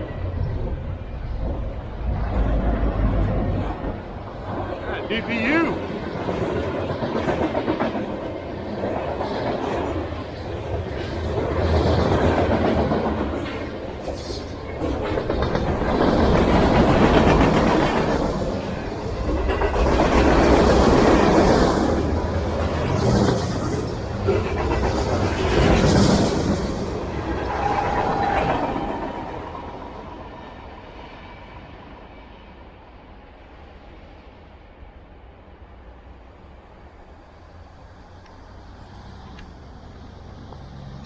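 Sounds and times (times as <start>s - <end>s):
train wheels clicking over rail joints: 6.3s - 30.1s.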